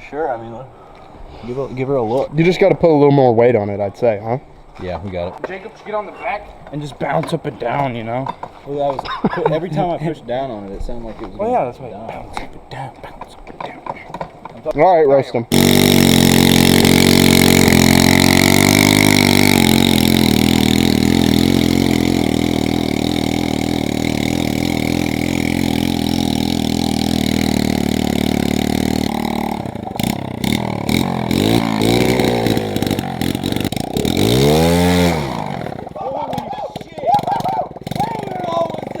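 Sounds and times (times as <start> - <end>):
motorcycle engine revving: 15.5 - 39.0.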